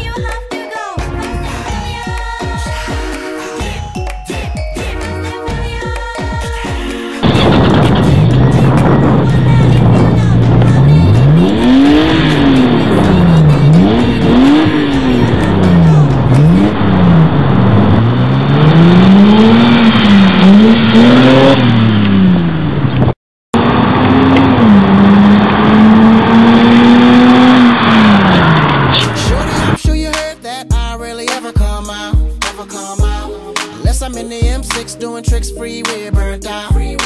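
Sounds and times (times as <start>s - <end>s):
car engine revving: 7.2s - 29.8s.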